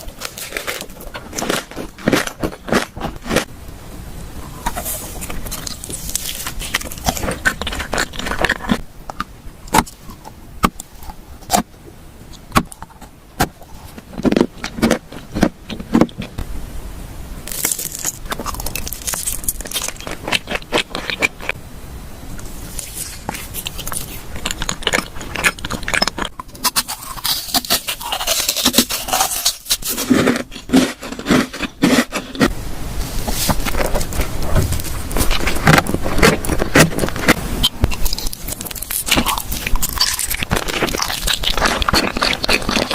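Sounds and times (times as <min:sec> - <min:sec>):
chewing and biting: 0:00.0 - 0:03.5, 0:04.6 - 0:11.7, 0:12.3 - 0:16.4, 0:17.5 - 0:21.6, 0:22.7 - 0:32.5, 0:33.5 - 0:42.9
wet mouth sounds: 0:17.5 - 0:21.6, 0:22.4 - 0:32.5, 0:33.5 - 0:42.9.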